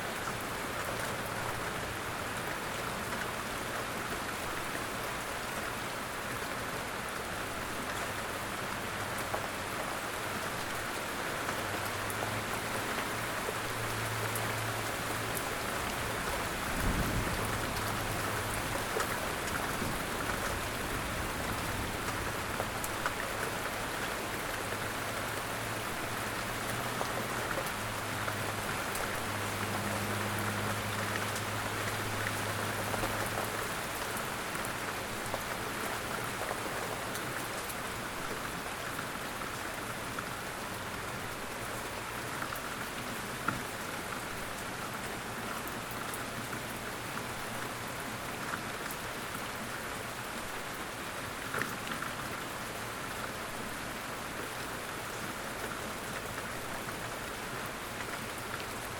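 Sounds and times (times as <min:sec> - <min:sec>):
light rain falling: 0:00.0 - 0:58.9.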